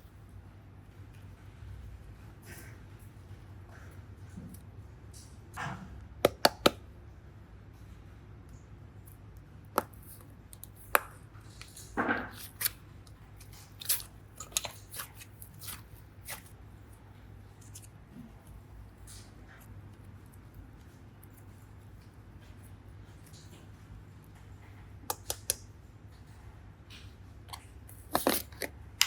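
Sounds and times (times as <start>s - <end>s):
tool clicks and taps: 6.2s - 6.8s, 25.1s - 25.6s
clay squishing: 6.2s - 6.9s, 9.0s - 23.6s, 24.9s - 25.7s, 26.9s - 29.0s.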